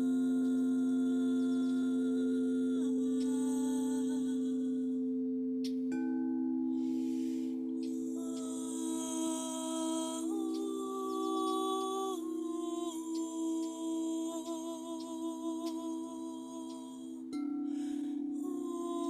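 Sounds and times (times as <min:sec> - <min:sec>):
person humming: 0:00.0 - 0:04.7, 0:08.1 - 0:17.4, 0:18.4 - 0:19.0.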